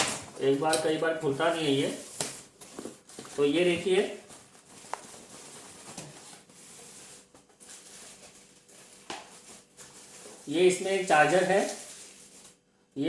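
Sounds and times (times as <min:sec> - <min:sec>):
cardboard box rustling: 0:02.6 - 0:10.5.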